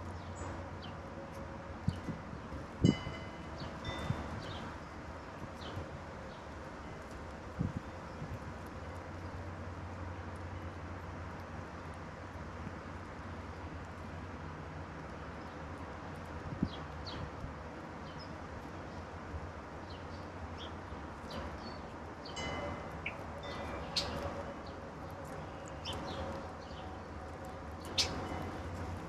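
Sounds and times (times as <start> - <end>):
songbirds chirping: 3.2 - 10.8, 15.0 - 29.0.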